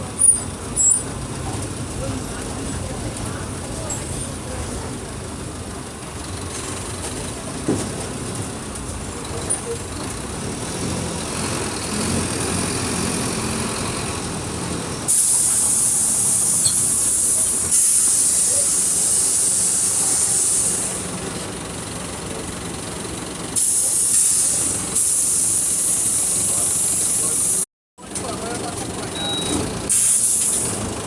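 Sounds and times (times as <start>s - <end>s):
bus diesel engine running: 0.0s - 31.0s
air hissing: 15.1s - 21.0s, 23.6s - 27.6s, 29.9s - 30.8s.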